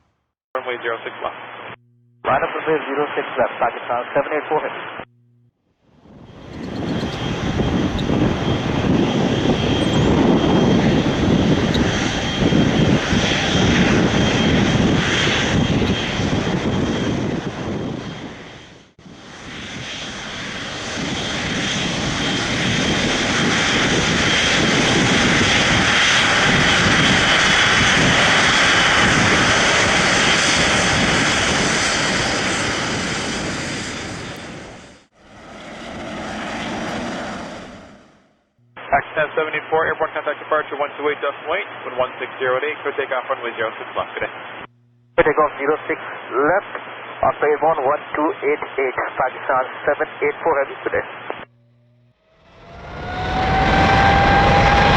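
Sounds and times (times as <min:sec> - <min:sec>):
jet engines roaring: 0:06.0 - 0:38.2, 0:51.5 - 0:54.9
high jet engine whine: 0:06.0 - 0:49.0, 0:49.6 - 0:54.9.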